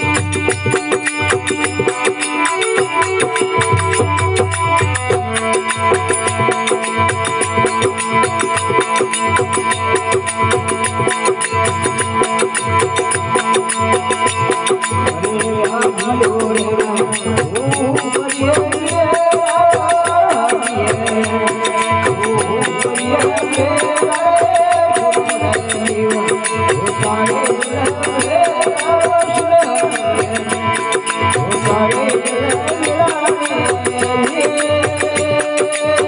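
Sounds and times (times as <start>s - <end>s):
hand drum beat: 0.0s - 36.0s.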